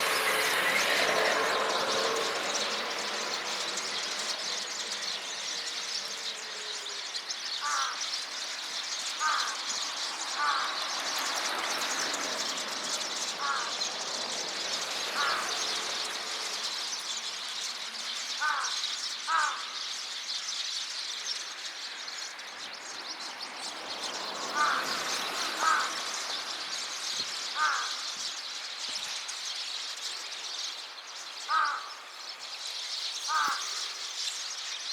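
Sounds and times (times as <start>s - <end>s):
louder lower bird calls: 0.0s - 17.2s, 18.4s - 19.8s, 24.0s - 28.6s, 31.4s - 32.1s, 33.2s - 34.2s
sparrows chirping and chattering: 0.0s - 34.9s.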